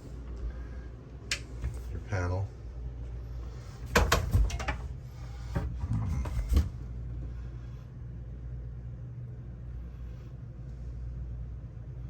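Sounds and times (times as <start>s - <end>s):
air conditioning hum: 0.0s - 12.0s.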